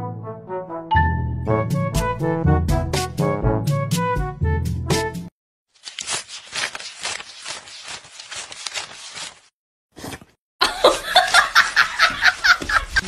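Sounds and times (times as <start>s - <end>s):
banknotes flicked and rustled: 5.8s - 9.5s.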